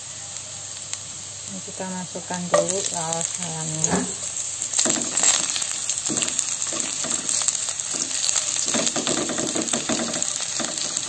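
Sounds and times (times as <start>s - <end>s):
shallots sizzling in hot oil: 0.0s - 11.0s
spatula stirring and scraping: 2.6s - 11.0s.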